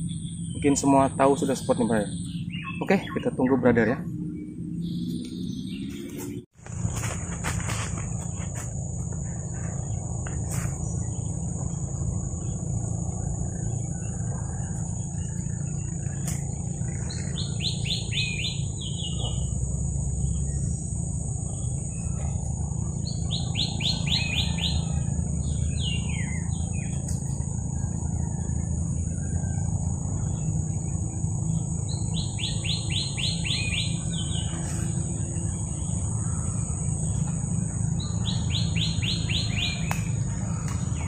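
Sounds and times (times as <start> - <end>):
low rumble: 0.0 - 23.6
high-pitched drone: 0.0 - 41.0
songbird singing: 0.0 - 41.0.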